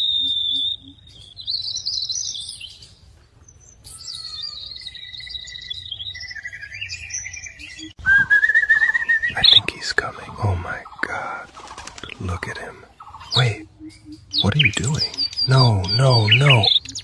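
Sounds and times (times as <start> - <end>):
small bird whistled chirps: 0.0 - 2.9, 3.6 - 9.7, 13.2 - 17.0.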